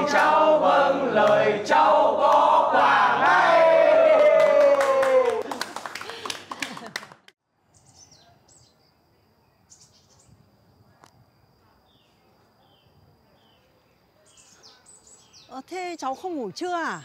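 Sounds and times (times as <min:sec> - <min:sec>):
small birds chirping: 0:07.7 - 0:17.0.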